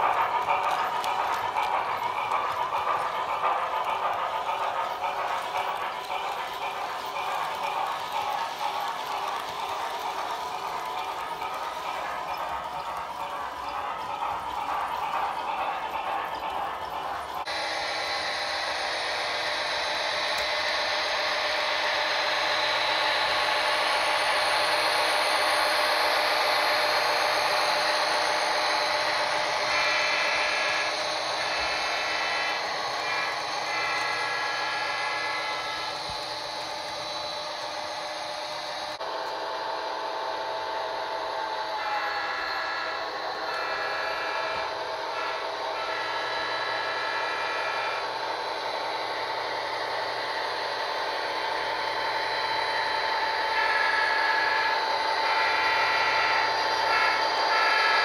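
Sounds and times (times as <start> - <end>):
model train running on track: 0.0 - 58.0
model train horn: 29.1 - 36.2, 41.8 - 48.2, 53.4 - 58.0.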